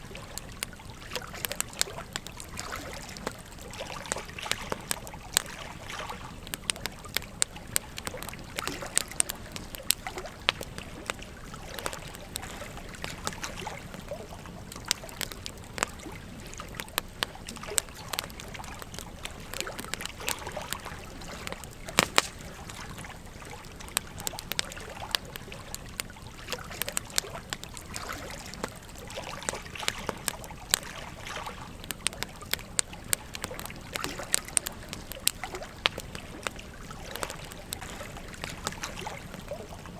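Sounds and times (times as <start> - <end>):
campfire crackling and popping: 0.0 - 39.9
gentle stream babbling: 0.0 - 39.9.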